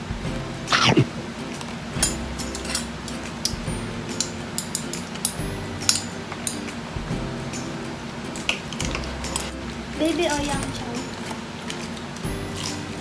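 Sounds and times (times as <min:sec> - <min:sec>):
cutlery clinking on plates: 0:01.4 - 0:06.9, 0:07.5 - 0:09.6, 0:10.4 - 0:13.0.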